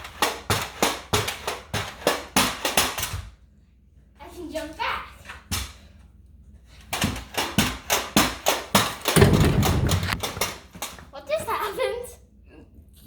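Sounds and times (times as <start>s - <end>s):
pogo stick falling and knocking shoes: 0.0s - 3.3s, 6.9s - 11.1s
pogo stick knocks: 7.0s - 11.0s.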